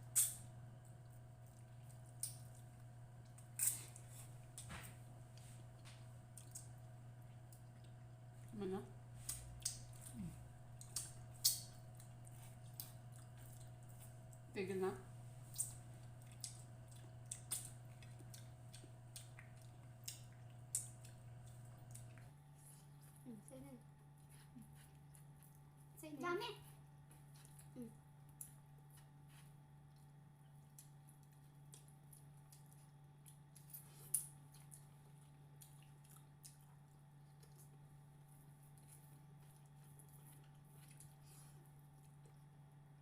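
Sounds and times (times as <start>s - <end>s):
steady low hum: 0.0s - 43.0s
chewing mouth smacks: 5.4s - 8.2s, 9.2s - 14.4s, 15.5s - 23.2s, 27.1s - 37.9s, 38.6s - 42.5s
wet chewing mouth smacks: 15.5s - 22.3s.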